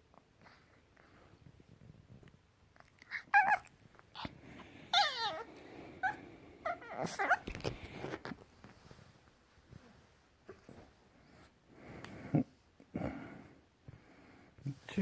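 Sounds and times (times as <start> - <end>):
puppy high wavering calls: 3.0 - 4.3, 4.9 - 7.5.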